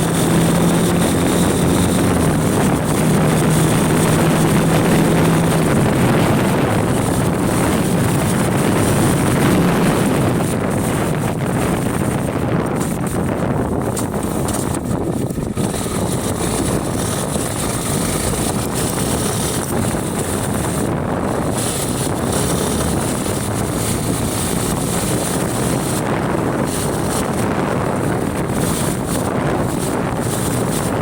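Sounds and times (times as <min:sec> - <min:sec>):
motorcycle running: 0:00.0 - 0:31.0
wind buffeting microphone: 0:00.0 - 0:31.0.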